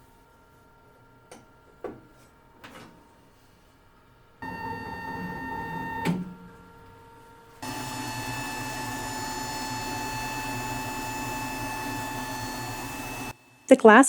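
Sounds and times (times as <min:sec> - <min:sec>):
laser engraver hum and whine: 0:04.0 - 0:13.7.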